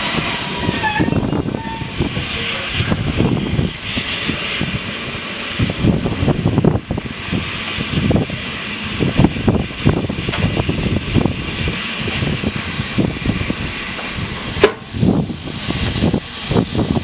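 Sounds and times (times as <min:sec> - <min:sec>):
railway carriage rumbling: 0:00.0 - 0:17.0.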